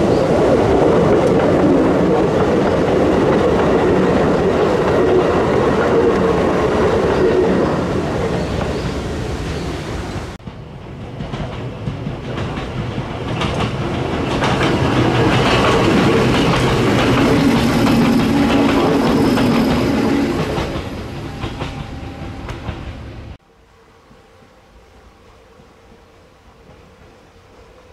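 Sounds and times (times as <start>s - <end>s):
train wheels clicking on joints: 10.0s - 23.4s.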